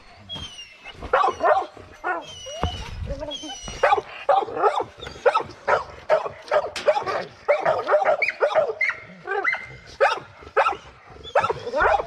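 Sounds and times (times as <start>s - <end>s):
dogs barking and yipping: 0.0s - 12.0s.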